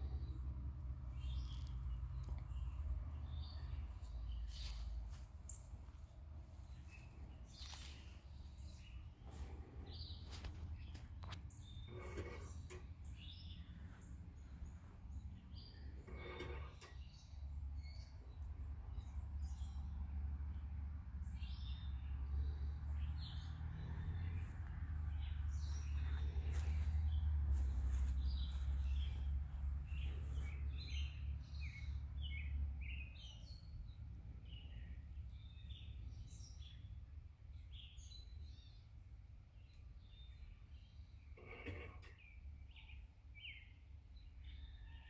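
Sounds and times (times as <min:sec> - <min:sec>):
birds chirping and singing: 0:24.2 - 0:36.9.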